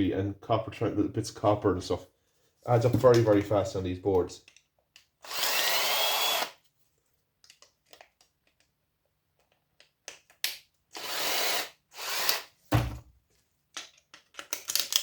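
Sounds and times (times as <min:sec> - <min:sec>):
electric drill bursts: 0:05.2 - 0:06.6, 0:11.0 - 0:12.5
dull thud: 0:12.7 - 0:13.1.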